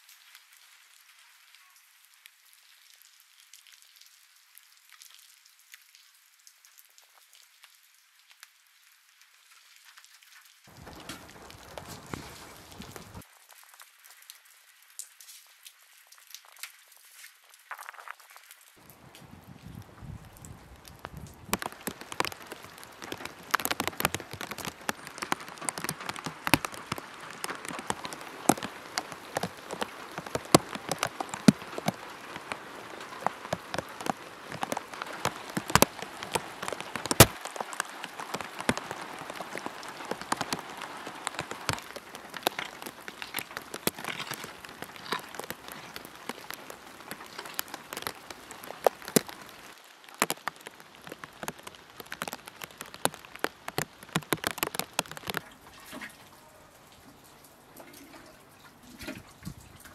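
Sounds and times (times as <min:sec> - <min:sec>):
steady rain patter: 0:00.0 - 0:59.9
sharp raindrop hits: 0:10.7 - 0:13.3, 0:17.7 - 0:56.0.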